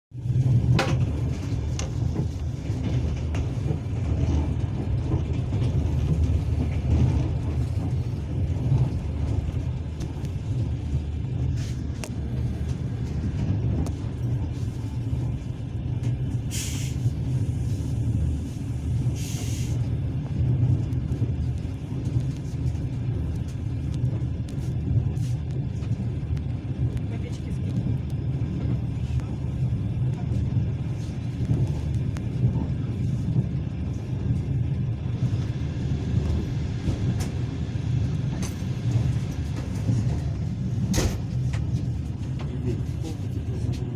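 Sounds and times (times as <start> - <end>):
train rumble from inside carriage: 0.0 - 43.9.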